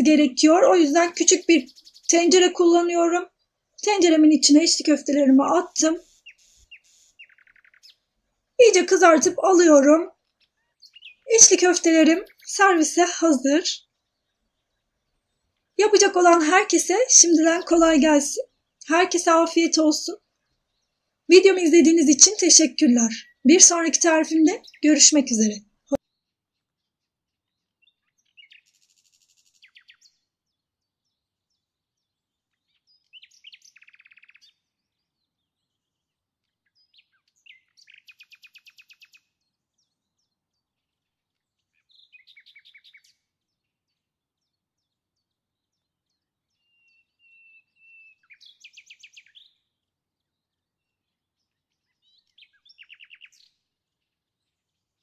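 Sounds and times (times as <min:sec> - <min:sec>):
songbird singing high trills: 0:00.9 - 0:04.2, 0:05.4 - 0:08.1, 0:09.0 - 0:12.8, 0:23.1 - 0:24.9, 0:27.5 - 0:55.0.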